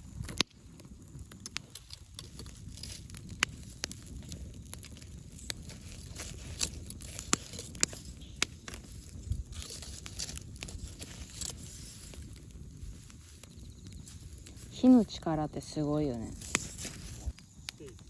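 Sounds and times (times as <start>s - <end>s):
bonfire burning: 0.0s - 18.0s
firewood popping and snapping: 0.0s - 18.0s.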